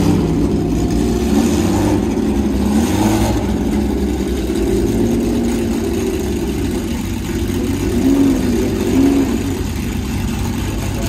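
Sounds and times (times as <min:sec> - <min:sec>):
engine throttle blips: 0:00.0 - 0:11.0
racing car engine idling: 0:00.0 - 0:11.0.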